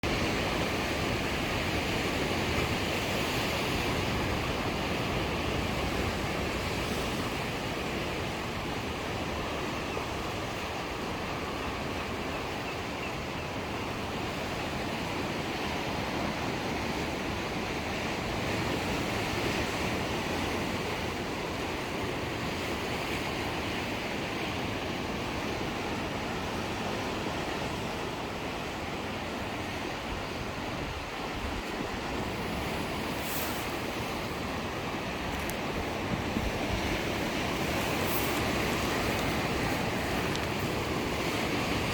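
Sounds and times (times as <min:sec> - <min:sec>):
ocean waves breaking on shore: 0:00.0 - 0:41.9
wind on microphone: 0:25.0 - 0:41.9.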